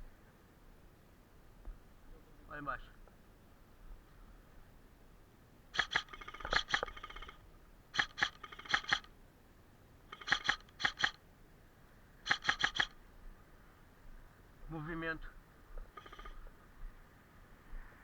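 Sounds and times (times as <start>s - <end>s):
airsoft guns firing: 5.8s - 7.4s, 8.0s - 9.1s, 10.1s - 11.2s, 12.3s - 12.9s.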